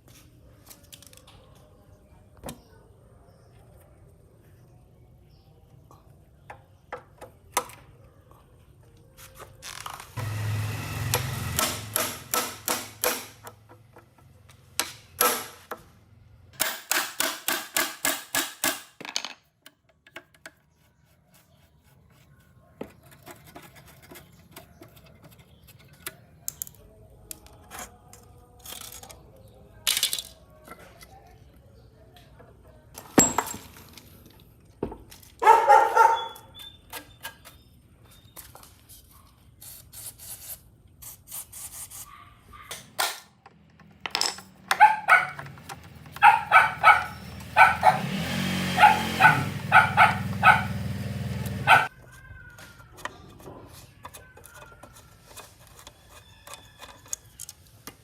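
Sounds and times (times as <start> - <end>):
clicks and knocks on metal parts: 16.6 - 20.7, 42.8 - 46.3.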